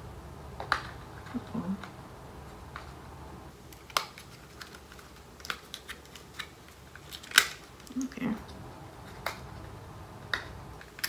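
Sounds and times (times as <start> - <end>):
packaging rustling: 3.5 - 8.4.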